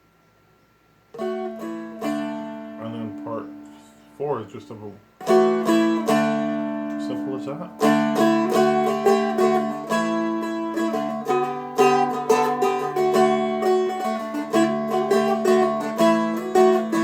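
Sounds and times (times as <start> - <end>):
open strings droning: 1.1 - 17.0
picked string melody: 1.1 - 17.0.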